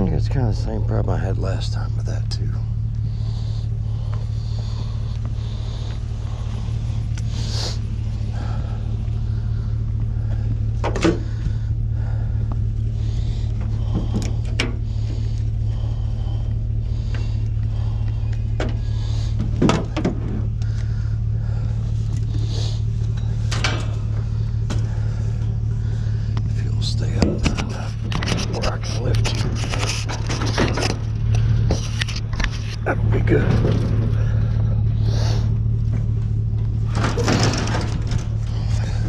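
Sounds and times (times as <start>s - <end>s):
vehicle engine idling: 0.0s - 39.0s
knocks and scrapes: 27.0s - 34.4s.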